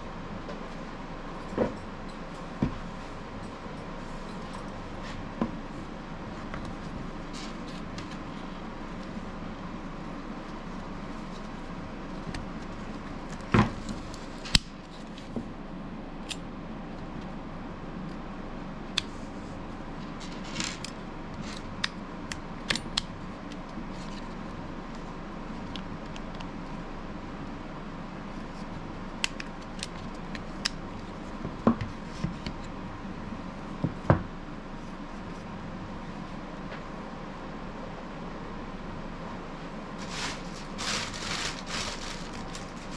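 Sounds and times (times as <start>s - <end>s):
steady background hum: 0.0s - 42.9s
rustle: 39.9s - 42.9s.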